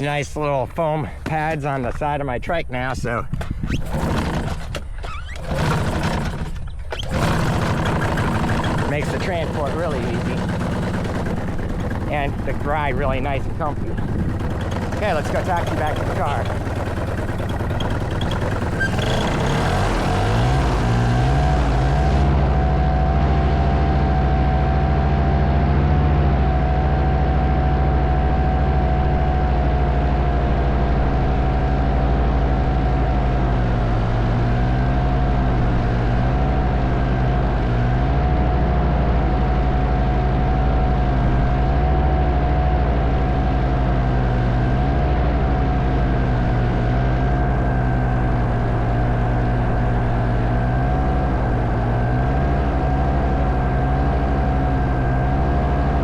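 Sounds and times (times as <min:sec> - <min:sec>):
engine and propeller running: 0:00.0 - 0:56.0.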